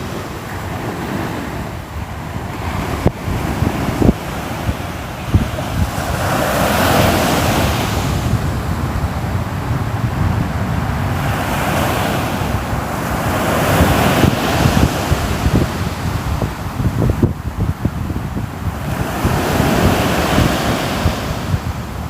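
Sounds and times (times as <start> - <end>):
sea waves breaking on shore: 0.0 - 22.0
wind buffeting microphone: 0.0 - 22.0.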